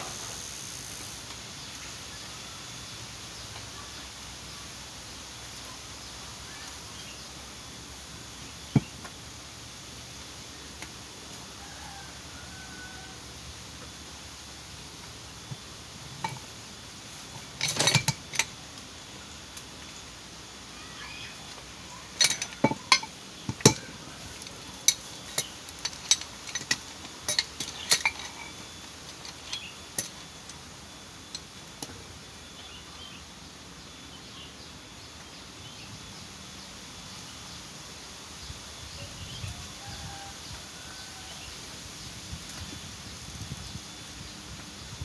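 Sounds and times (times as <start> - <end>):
metal tools clinking: 15.5 - 18.6, 22.1 - 31.6.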